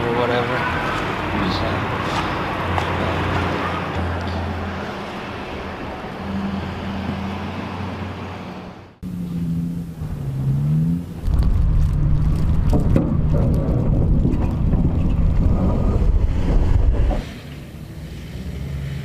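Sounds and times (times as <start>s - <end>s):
engine low drone: 1.3s - 19.0s
wind buffeting microphone: 11.2s - 17.2s.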